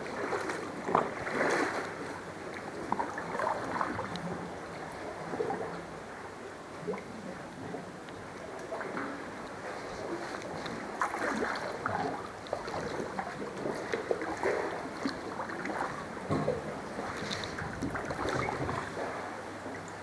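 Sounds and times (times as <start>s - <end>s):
paddle splashing in water: 0.0s - 6.2s, 7.7s - 20.0s
water noise: 0.0s - 20.0s
wind noise: 16.3s - 19.1s.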